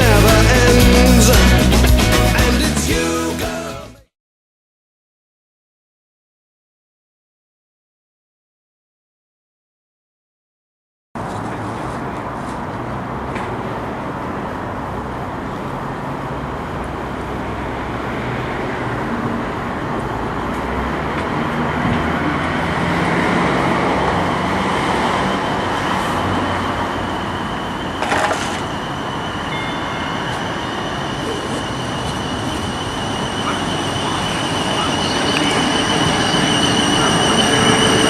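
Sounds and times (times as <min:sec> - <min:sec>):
train rumbling past: 0:11.2 - 0:38.0
steady high whine: 0:23.8 - 0:38.0.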